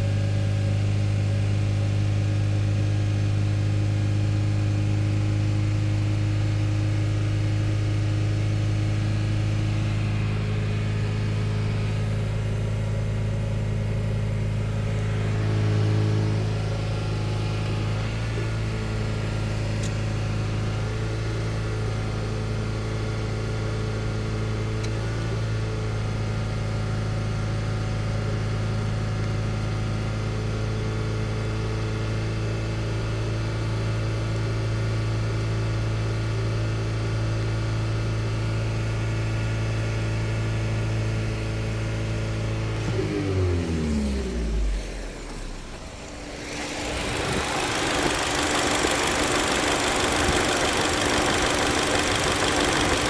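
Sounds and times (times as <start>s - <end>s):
car engine idling: 0.0s - 30.1s, 42.4s - 53.0s.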